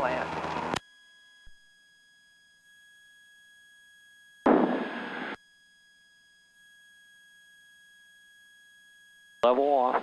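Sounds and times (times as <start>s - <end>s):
faint steady electrical tones: 0.0s - 10.0s
open-mic noise burst: 4.5s - 5.4s.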